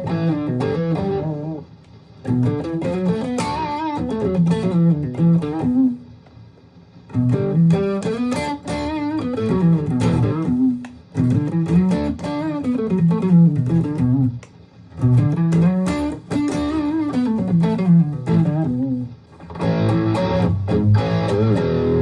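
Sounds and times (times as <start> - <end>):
electric guitar single-note runs: 19.6 - 22.0.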